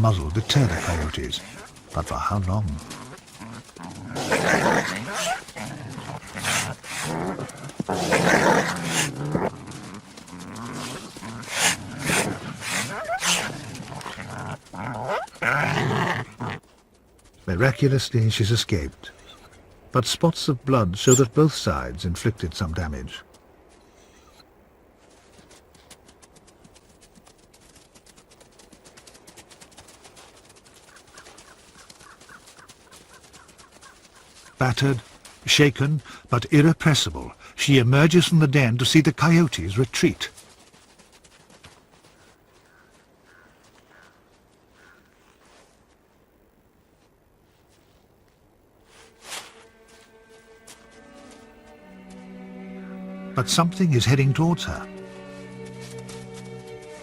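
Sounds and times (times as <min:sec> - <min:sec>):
animals snarling and growling: 0:00.0 - 0:16.7.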